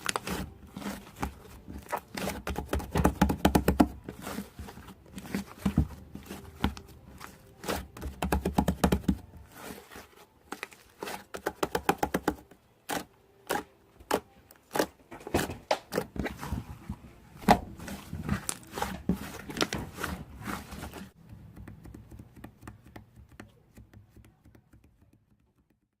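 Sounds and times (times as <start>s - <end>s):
hands squishing sticky slime: 0.0s - 25.8s.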